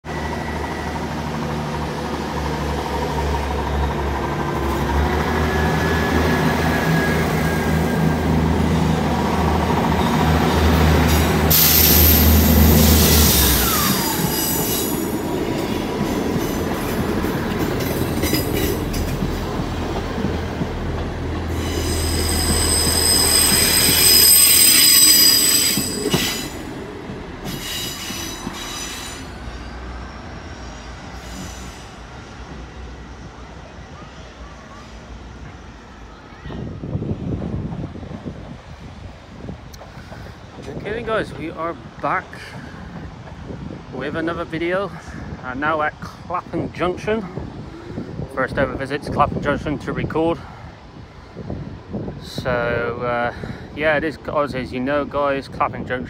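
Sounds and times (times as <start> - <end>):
electric train hum and whine: 0.1 - 40.6
high-pitched wheel squeal: 21.6 - 26.6.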